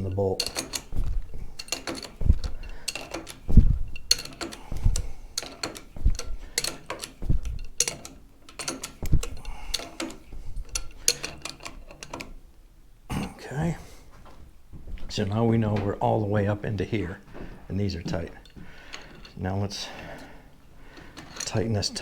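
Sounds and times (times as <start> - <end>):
knocks: 0.0 - 6.4, 7.0 - 8.0.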